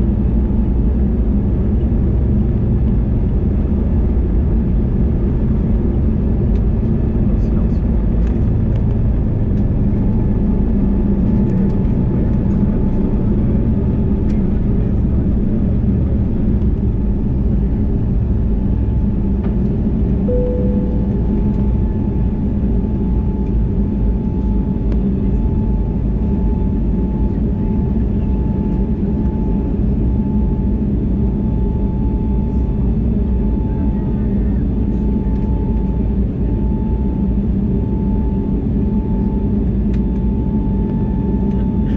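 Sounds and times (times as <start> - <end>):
aircraft cabin engine rumble: 0.0 - 41.9
brief short tone: 20.3 - 21.9
faint steady tone: 20.3 - 22.1.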